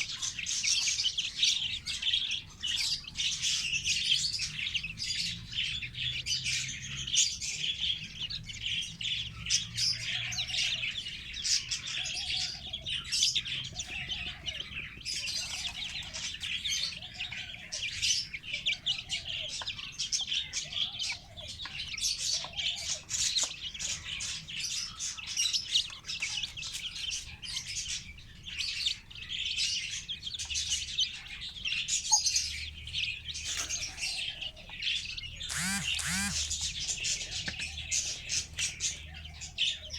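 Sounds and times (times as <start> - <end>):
chicks peeping: 0.0 - 39.9
hen calling: 35.3 - 36.8.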